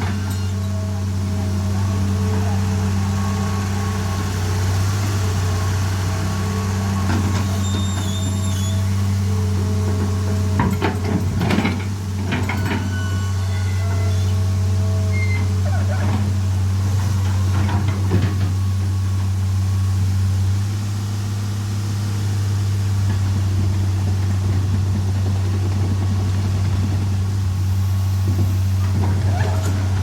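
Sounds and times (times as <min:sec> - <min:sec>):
excavator engine droning: 0:00.0 - 0:30.0
metal clanks and knocks: 0:09.8 - 0:13.1.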